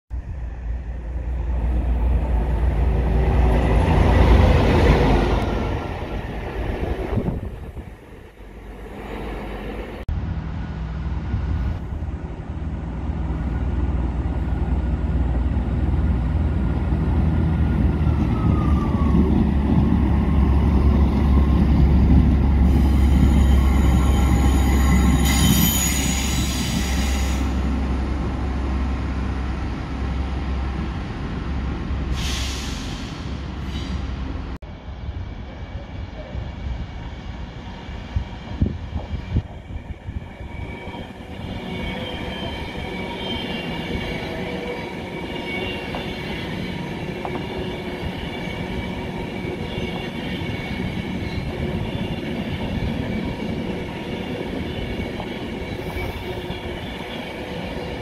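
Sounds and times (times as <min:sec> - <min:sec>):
train passing: 0:00.1 - 0:58.0
train engines droning: 0:00.2 - 0:58.0
high squeal: 0:22.6 - 0:27.7.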